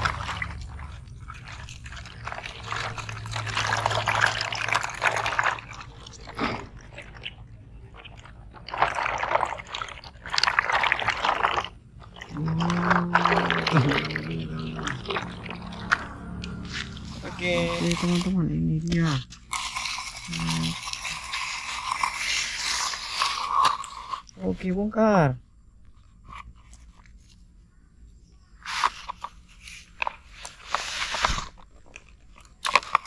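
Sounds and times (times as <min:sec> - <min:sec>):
short low tone: 0:12.3 - 0:18.9
sand scraped and poured: 0:15.3 - 0:23.8, 0:28.6 - 0:31.6.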